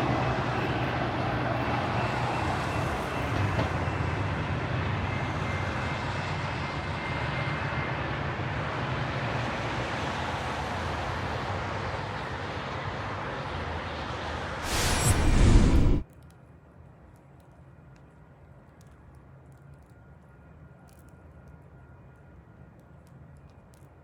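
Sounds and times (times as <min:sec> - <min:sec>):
train rumbling by: 0:00.0 - 0:07.0, 0:10.6 - 0:16.0.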